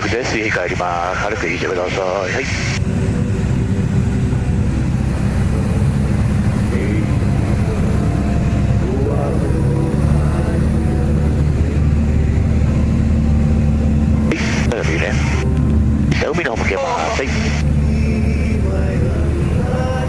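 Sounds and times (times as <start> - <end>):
light aircraft engine droning: 0.0 - 20.0.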